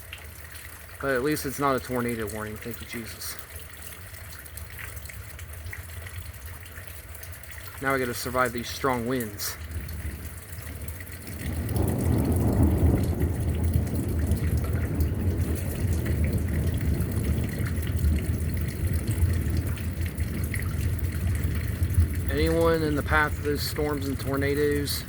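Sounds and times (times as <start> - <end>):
wind gusting against microphone: 8.0 - 25.0.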